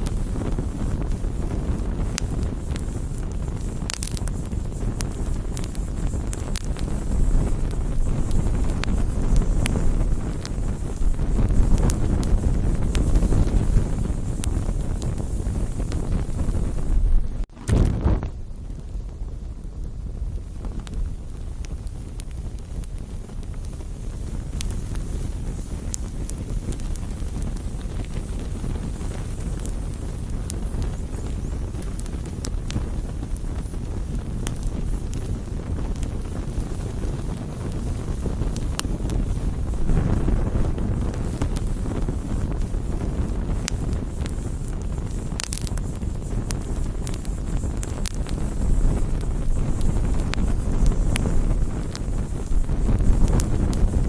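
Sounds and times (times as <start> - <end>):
burning wood crackling and popping: 0.0 - 54.0
fire low rushing: 0.0 - 54.0.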